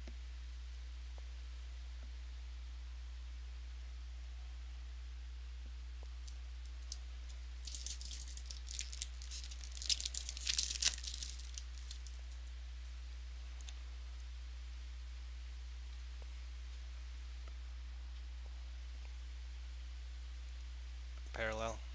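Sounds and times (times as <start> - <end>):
wrapper tearing and crinkling: 6.2 - 12.3.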